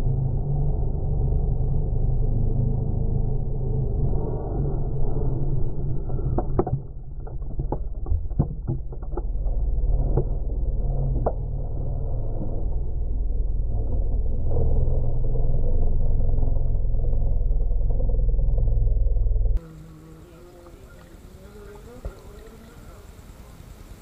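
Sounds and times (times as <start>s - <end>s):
car engine rumbling: 0.0s - 24.0s
sharp clicks or knocks: 6.3s - 9.4s.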